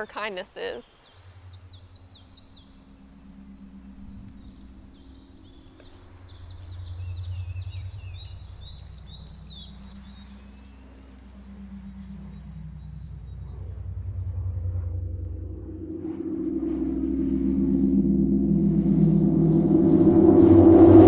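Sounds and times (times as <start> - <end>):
songbirds chirping: 0.0 - 15.6
low steady hum: 0.0 - 21.0.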